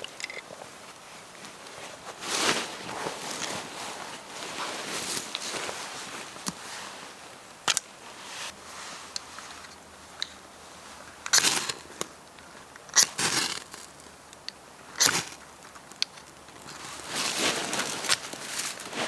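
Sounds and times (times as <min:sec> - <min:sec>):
twigs and leaves crunching: 0:00.0 - 0:06.7, 0:16.1 - 0:19.0.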